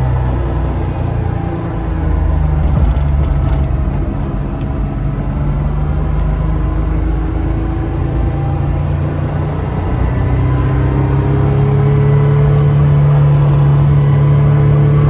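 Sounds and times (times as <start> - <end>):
car engine heard from cabin: 2.6 - 6.8, 11.5 - 15.0.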